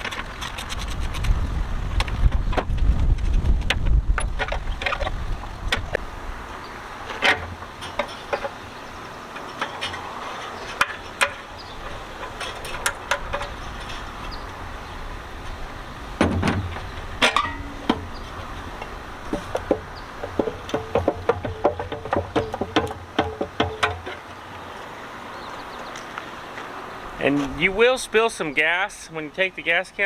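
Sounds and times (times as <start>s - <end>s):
clatter and thump: 16.2s - 18.1s, 19.4s - 24.2s
metal tools clinking: 17.2s - 18.5s.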